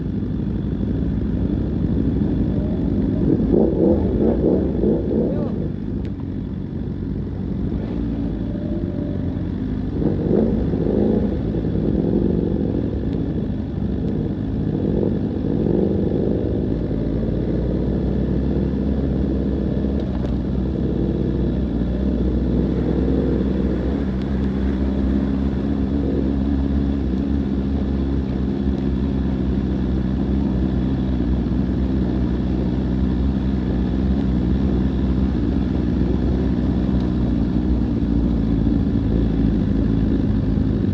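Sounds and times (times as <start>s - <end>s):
constant low rumble: 0.0s - 40.9s
vehicle engine running: 0.0s - 40.9s.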